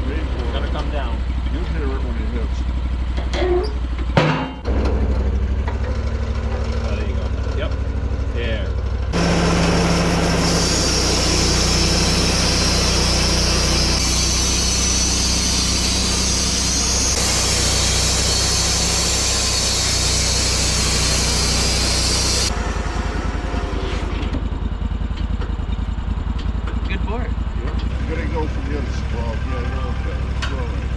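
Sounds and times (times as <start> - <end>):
sawmill engine humming: 0.0 - 3.2, 4.7 - 30.9
saw blade cutting wood: 9.2 - 24.4.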